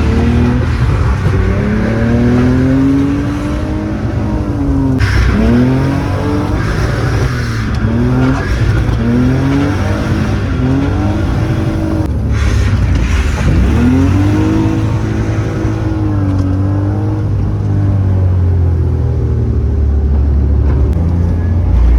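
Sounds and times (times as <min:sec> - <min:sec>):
hissing rush: 0:00.0 - 0:16.6
car engine revving hard: 0:00.0 - 0:18.6.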